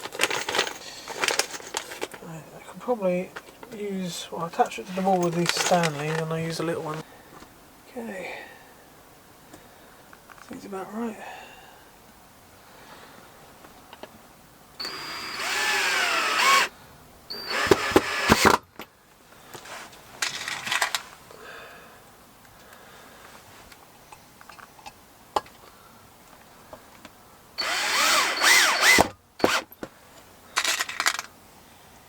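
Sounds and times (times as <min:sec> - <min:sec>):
power drill driving screws: 0:14.8 - 0:16.7, 0:17.3 - 0:18.6, 0:27.6 - 0:29.7.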